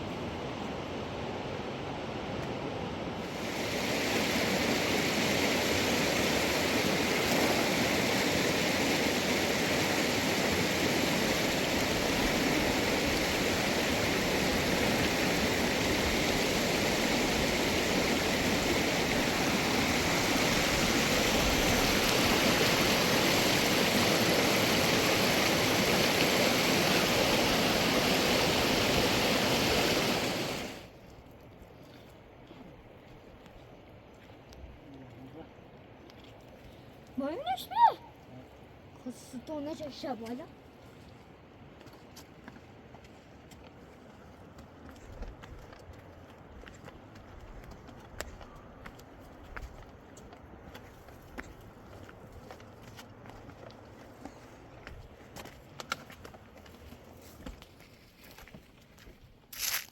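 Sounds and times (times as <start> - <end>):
river water rushing over stones: 3.2 - 31.0, 59.6 - 59.9.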